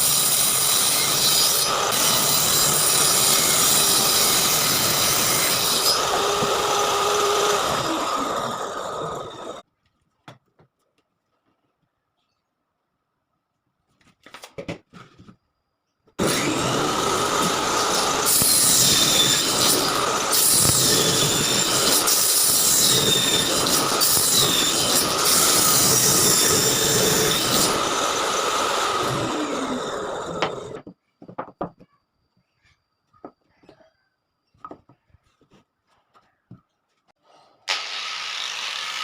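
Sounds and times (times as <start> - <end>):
power tool cutting wood: 0.0 - 9.6, 16.2 - 30.8, 37.6 - 39.0.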